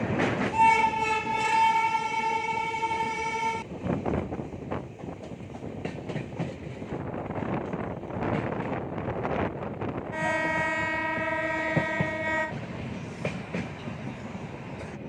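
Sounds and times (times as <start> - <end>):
train wheels clattering: 0.0 - 2.2, 4.7 - 8.8, 10.5 - 15.0
locomotive horn blast: 0.5 - 3.6, 10.1 - 12.6.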